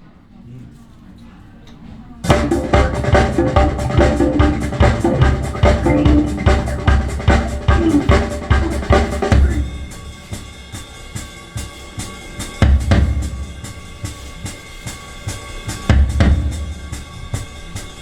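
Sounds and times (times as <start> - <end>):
music over loudspeakers: 2.3 - 9.8
drum kit beat: 2.3 - 10.2.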